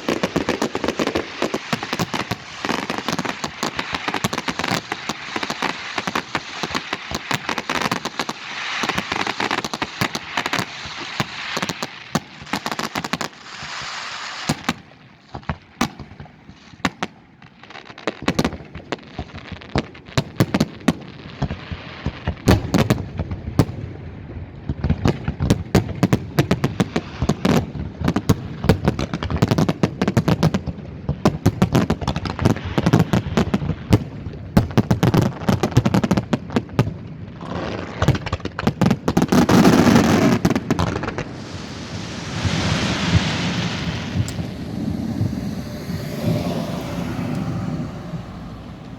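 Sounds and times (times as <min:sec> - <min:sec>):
fireworks sharp bangs: 0:00.0 - 0:17.1, 0:38.1 - 0:48.9
fireworks crackle: 0:00.0 - 0:48.9
fireworks deep booms: 0:39.5 - 0:48.9.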